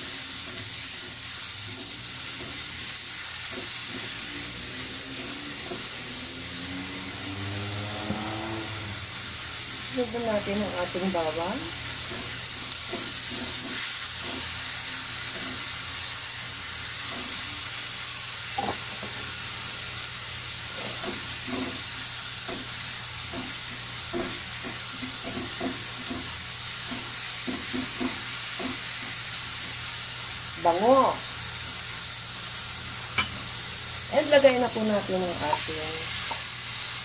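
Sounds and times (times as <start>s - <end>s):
onion and garlic sizzling in oil: 0.0s - 37.0s
spatula scraping and tapping pan: 23.3s - 29.1s, 33.1s - 33.5s.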